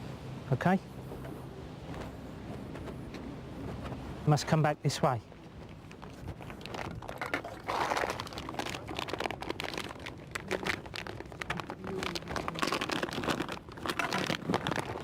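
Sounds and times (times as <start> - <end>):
rustling and crinkling handling: 5.0 - 15.0.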